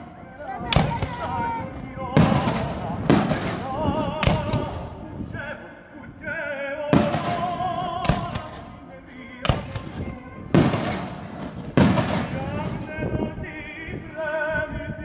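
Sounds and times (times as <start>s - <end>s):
opera music: 0.0s - 15.0s
firework shells bursting: 9.4s - 12.9s.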